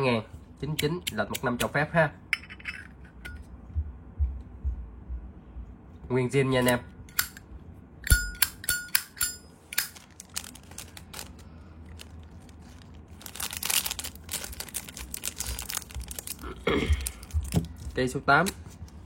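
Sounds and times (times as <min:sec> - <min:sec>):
rustling handling noise: 0:09.5 - 0:19.0.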